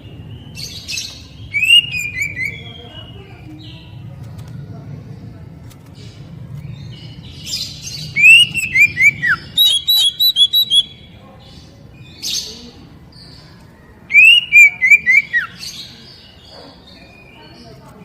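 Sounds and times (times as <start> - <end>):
magpie-robin singing: 0.0 - 4.0, 6.6 - 17.9.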